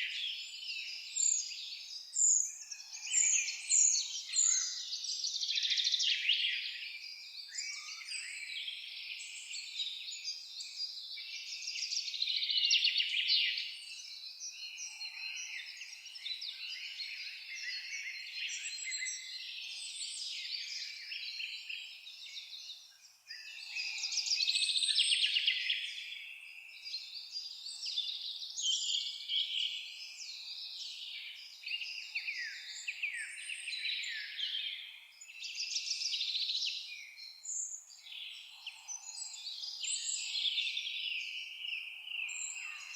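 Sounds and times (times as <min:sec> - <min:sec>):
chorus of songbirds singing: 0:00.0 - 0:42.9.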